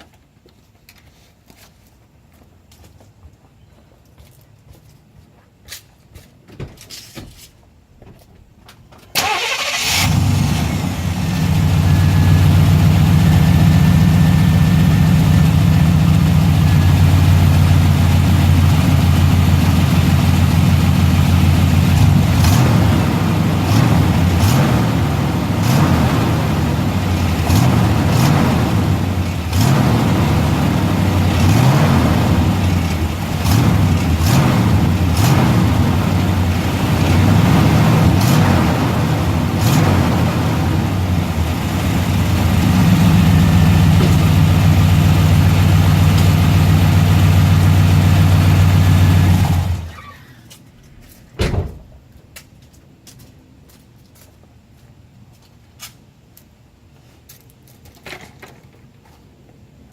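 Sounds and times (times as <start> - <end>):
engine starting and running: 9.1 - 50.6.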